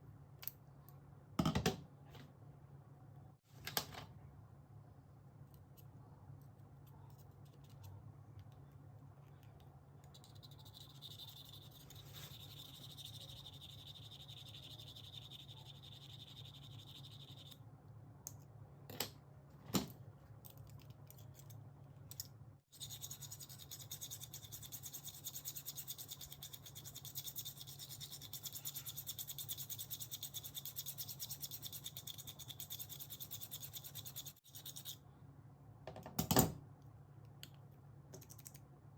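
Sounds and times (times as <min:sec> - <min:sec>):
scissors scratching on abrasive: 0:22.8 - 0:35.0.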